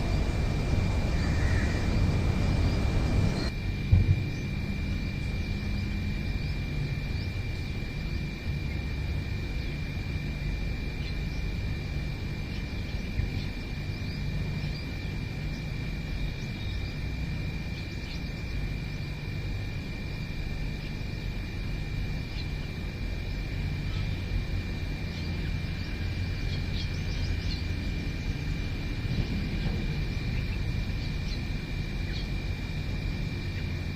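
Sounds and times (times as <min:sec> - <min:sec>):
faint bird chirps: 0:00.0 - 0:03.6
thin high-pitched drone: 0:00.0 - 0:06.5.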